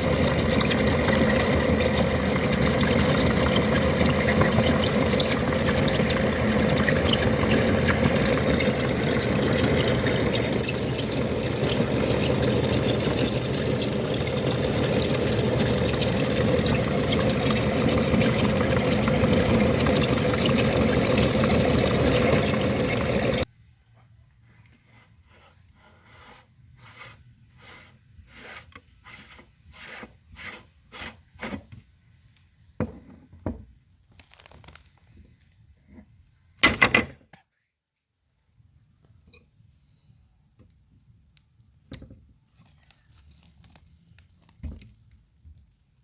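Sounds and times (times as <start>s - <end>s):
electric meat grinder running: 0.0s - 23.5s.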